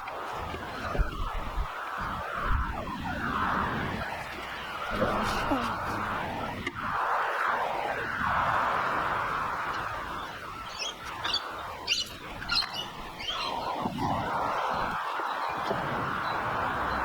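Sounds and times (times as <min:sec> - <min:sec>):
high bird chirps: 0:10.2 - 0:13.8.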